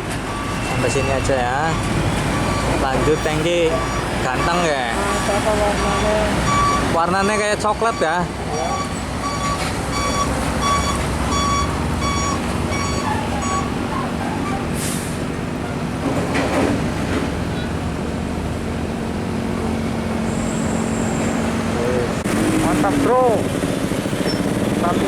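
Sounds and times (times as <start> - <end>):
truck engines rumbling: 0.0 - 25.0
truck warning beeper: 0.2 - 15.2
air brake hiss: 14.8 - 15.3.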